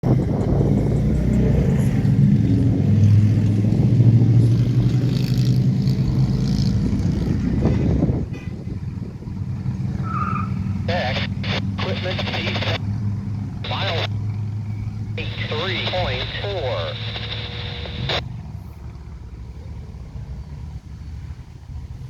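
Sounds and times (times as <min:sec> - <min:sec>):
diesel locomotive engine humming: 0:07.1 - 0:22.0.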